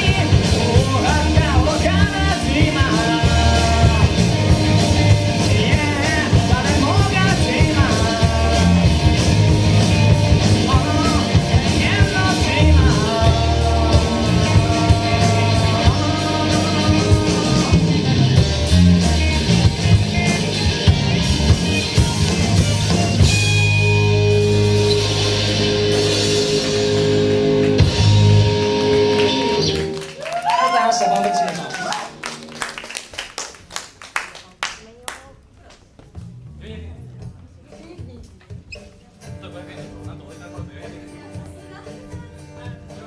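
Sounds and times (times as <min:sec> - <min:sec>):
person singing: 0:00.0 - 0:09.1, 0:10.5 - 0:18.1
live rock band playing: 0:00.0 - 0:30.4.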